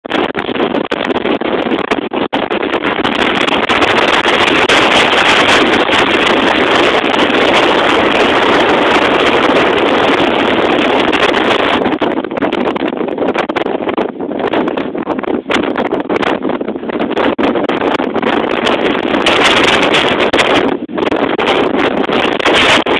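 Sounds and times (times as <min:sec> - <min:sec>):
wind buffeting microphone: 0:00.0 - 0:22.9.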